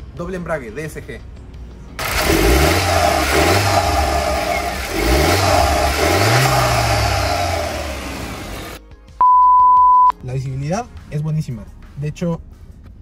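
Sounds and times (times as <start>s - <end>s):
car engine revving: 2.0s - 8.8s.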